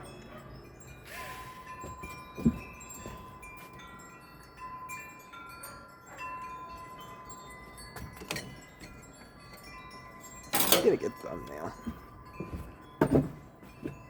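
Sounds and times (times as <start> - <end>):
wind chimes ringing: 0.0 - 14.0.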